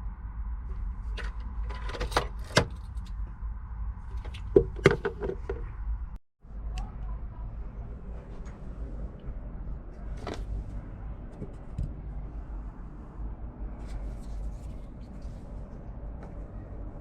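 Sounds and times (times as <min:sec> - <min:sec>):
steady low hum: 0:00.0 - 0:17.0
sharp knocks and clunks: 0:04.3 - 0:05.7, 0:11.3 - 0:12.2.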